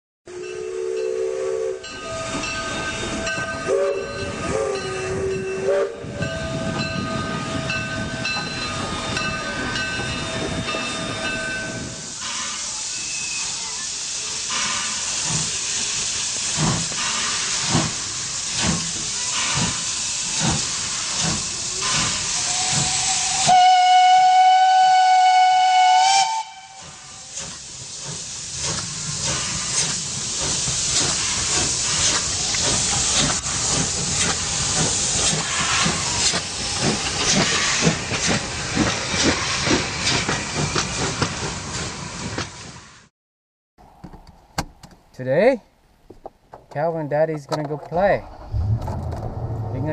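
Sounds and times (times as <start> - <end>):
steam whistle blast: 0.3 - 2.5, 3.1 - 6.8, 22.0 - 27.3
hissing steam: 0.3 - 43.1.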